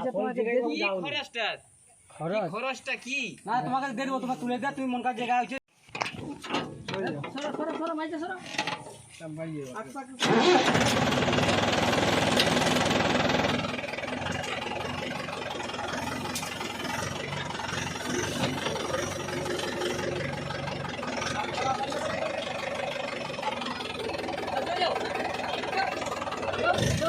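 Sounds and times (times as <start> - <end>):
tractor diesel engine running: 10.2 - 27.0.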